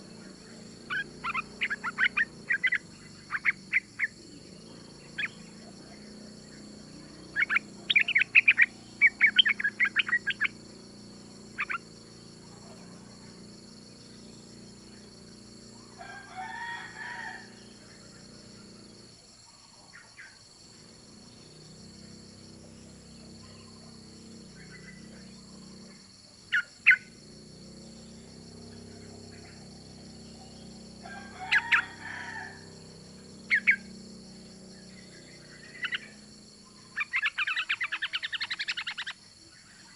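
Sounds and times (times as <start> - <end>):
longer lower bird call: 0.0 - 10.6, 28.0 - 39.9
bird chattering notes: 7.0 - 10.6, 11.5 - 11.9.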